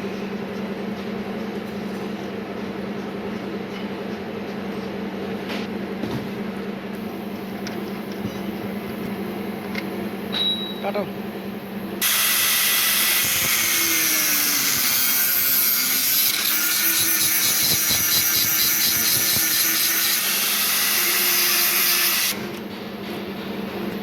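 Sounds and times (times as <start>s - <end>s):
power tool cutting metal: 12.0s - 22.6s.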